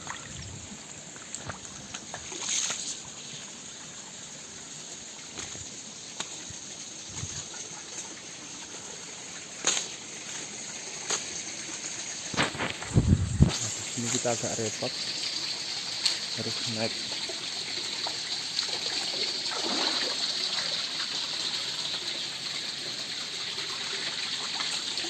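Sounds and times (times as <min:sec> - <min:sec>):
stream trickling over stones: 0:00.0 - 0:25.0
sharp knocks or splashes: 0:19.5 - 0:20.2.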